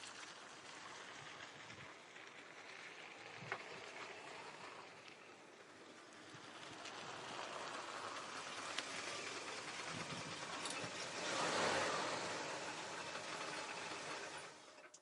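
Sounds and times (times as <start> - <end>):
car tyre and road noise: 0.0 - 15.0.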